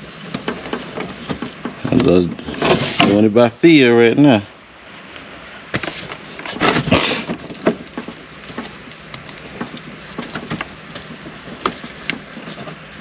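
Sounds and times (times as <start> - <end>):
plastic clicks and scraping: 0.2 - 3.2, 5.8 - 13.0.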